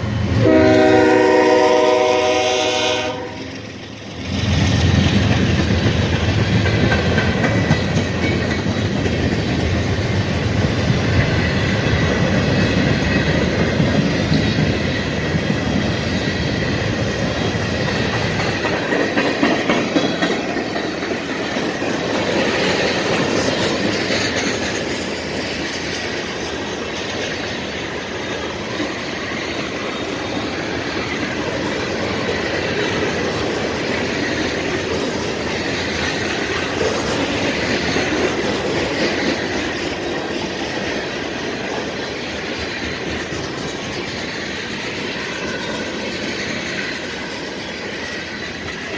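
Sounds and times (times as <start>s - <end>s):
wheels clicking over rail joints: 3.5s - 48.9s.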